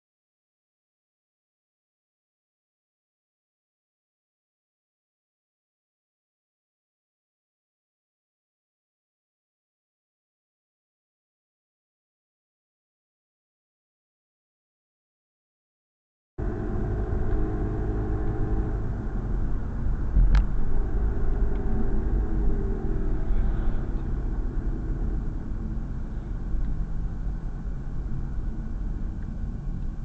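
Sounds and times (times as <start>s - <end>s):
car engine and road noise: 16.4s - 30.0s.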